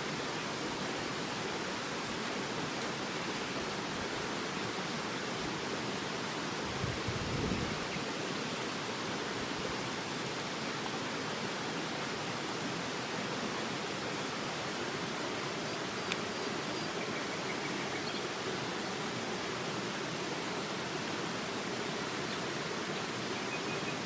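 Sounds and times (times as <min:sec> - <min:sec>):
river water rushing: 0:00.0 - 0:24.0
faint click: 0:16.0 - 0:16.2.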